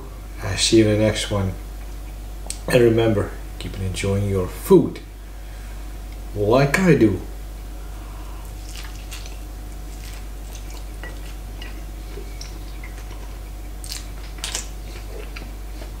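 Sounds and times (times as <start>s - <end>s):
steady low hum: 0.0s - 16.0s
crackles: 8.4s - 16.0s
person biting and chewing: 8.4s - 16.0s.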